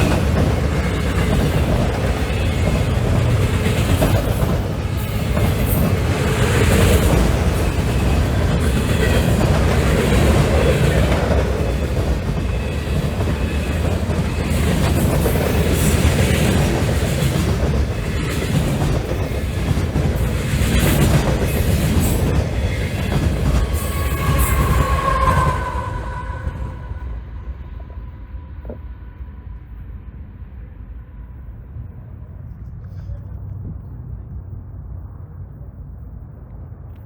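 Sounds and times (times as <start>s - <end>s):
freight train cars rolling past: 0.0s - 36.8s
high squeal: 22.2s - 29.5s.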